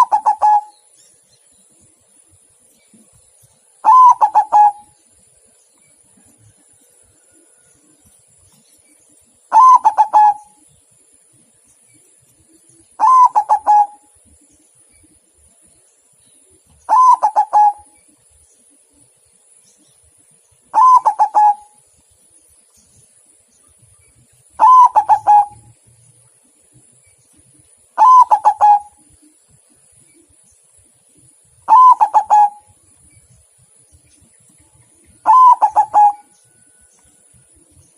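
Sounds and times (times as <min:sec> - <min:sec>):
dove cooing: 0:00.0 - 0:00.8, 0:03.8 - 0:05.0, 0:09.5 - 0:10.6, 0:12.9 - 0:14.1, 0:16.9 - 0:18.0, 0:20.7 - 0:21.8, 0:24.6 - 0:25.8, 0:28.0 - 0:29.1, 0:31.7 - 0:32.8, 0:35.2 - 0:36.4.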